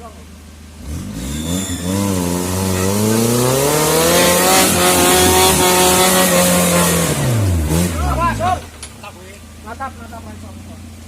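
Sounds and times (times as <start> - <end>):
engine revving hard: 0.8 - 8.7.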